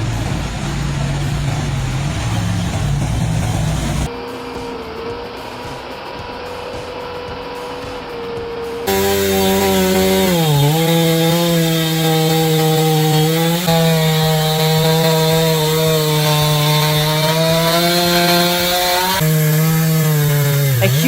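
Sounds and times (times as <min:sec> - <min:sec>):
chainsaw running at high revs: 0:08.9 - 0:21.0.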